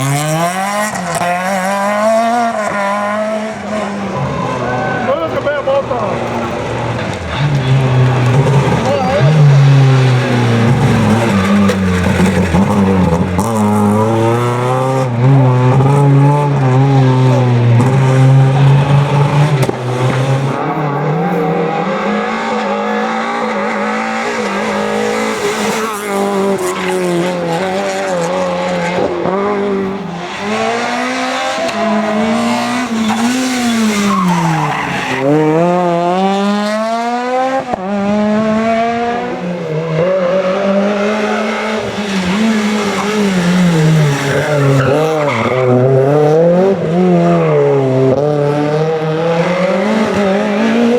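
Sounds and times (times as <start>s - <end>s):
rally car engine revving: 0.0s - 50.9s
tyres squealing: 19.8s - 35.5s.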